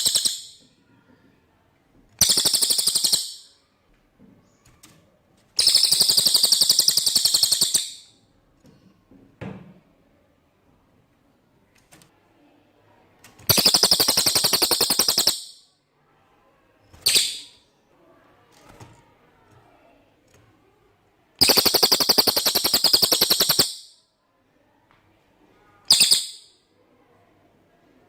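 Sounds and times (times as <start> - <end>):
songbird rattling trills: 0.0 - 0.6, 2.2 - 3.5, 5.6 - 8.0, 13.5 - 15.6, 21.4 - 24.0.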